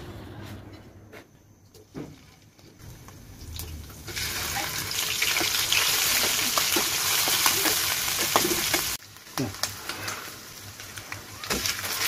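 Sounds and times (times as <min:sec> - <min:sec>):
food sizzling in hot oil: 0:02.8 - 0:12.0.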